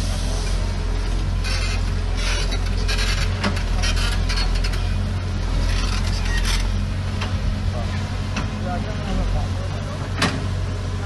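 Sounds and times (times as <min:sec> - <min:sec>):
diesel machinery rumbling: 0:00.0 - 0:11.0.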